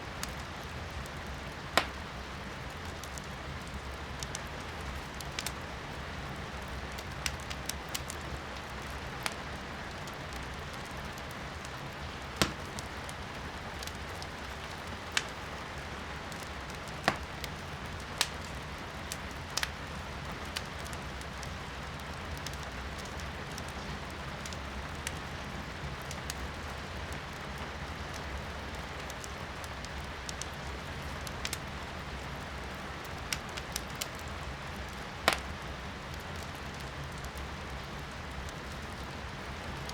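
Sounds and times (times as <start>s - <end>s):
rain hissing outside: 0.0s - 39.9s
wood fire crackling and popping: 0.1s - 39.9s.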